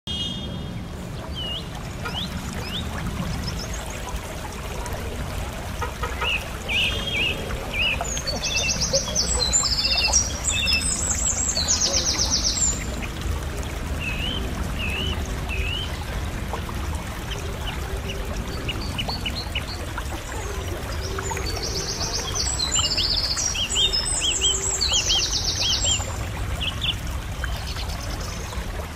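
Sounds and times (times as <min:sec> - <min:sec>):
whistled bird calls: 0:00.1 - 0:00.6.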